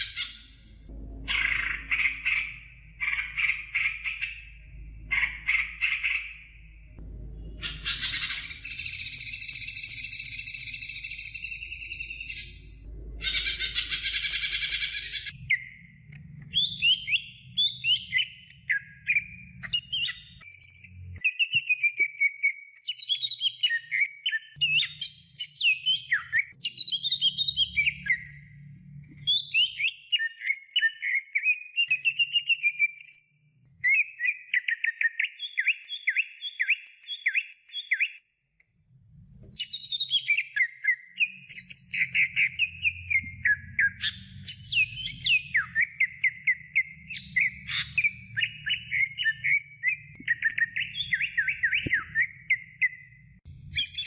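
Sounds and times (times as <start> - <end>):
bird singing whistled phrases: 7.6 - 12.6, 16.5 - 28.4, 29.2 - 38.2, 39.6 - 54.0.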